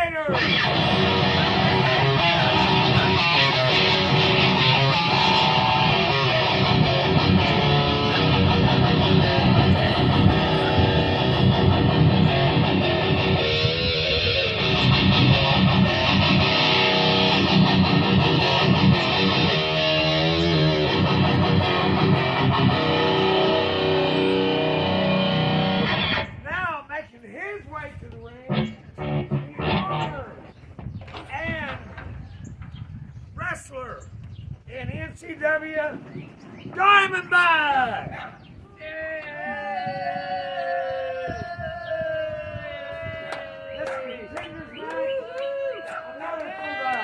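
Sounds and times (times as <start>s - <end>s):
electric guitar rock music: 0.3s - 26.4s, 28.5s - 30.5s.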